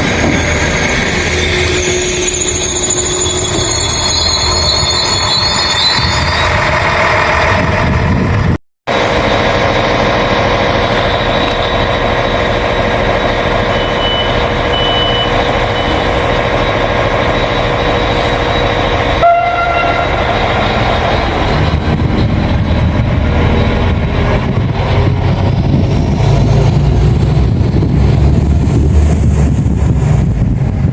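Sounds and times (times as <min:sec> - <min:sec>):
train running past: 0:00.0 - 0:30.9
train horn toot: 0:19.2 - 0:20.5.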